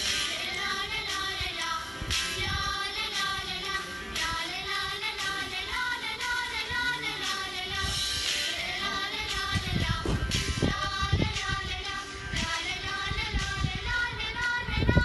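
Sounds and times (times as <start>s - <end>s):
children singing: 0.0s - 15.0s
musical accompaniment: 0.0s - 15.0s
low thumps: 9.3s - 14.0s.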